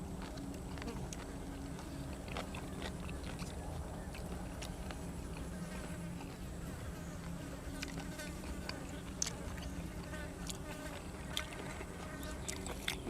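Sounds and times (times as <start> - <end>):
close chewing with crunches: 0.0 - 13.0
steady low buzz: 0.0 - 13.0.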